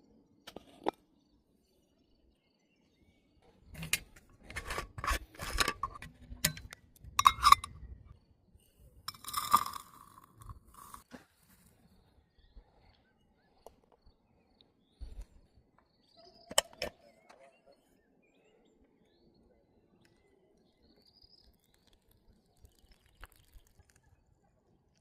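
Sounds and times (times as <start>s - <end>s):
rattling scraping and clinking: 3.8s - 7.9s, 9.1s - 11.1s.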